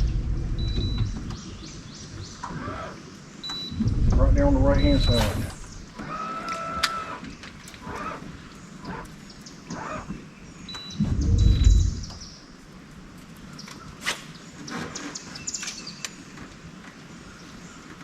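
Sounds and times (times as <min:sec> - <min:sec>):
low rumble: 0:00.0 - 0:02.3, 0:03.7 - 0:05.9, 0:11.0 - 0:12.4
birds chirping faintly: 0:00.0 - 0:06.2, 0:07.0 - 0:18.0.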